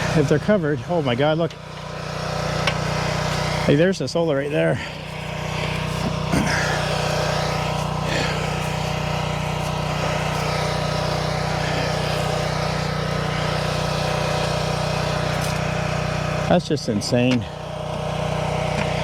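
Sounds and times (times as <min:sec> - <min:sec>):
engine droning steadily: 0:00.0 - 0:19.0
faint brushing or scraping: 0:05.0 - 0:10.6.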